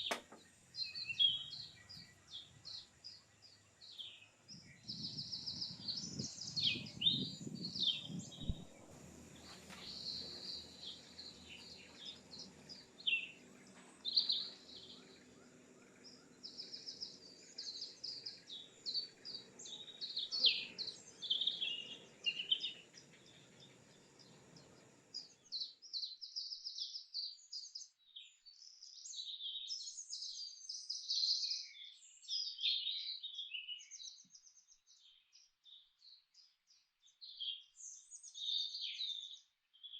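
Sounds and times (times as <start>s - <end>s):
birds chirping and calling: 0.0s - 25.8s
low background rumble: 0.4s - 25.3s.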